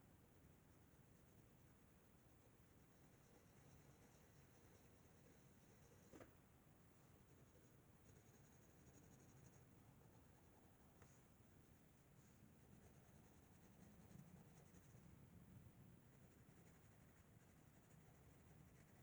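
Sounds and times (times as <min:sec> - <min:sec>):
pencil scratching on paper: 0:12.6 - 0:15.0, 0:16.1 - 0:19.0.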